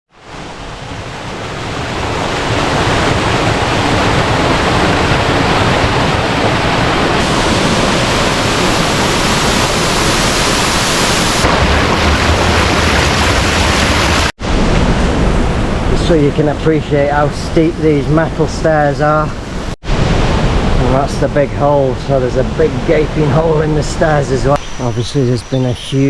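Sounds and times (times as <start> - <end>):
waterfall rushing: 0.2 - 14.3.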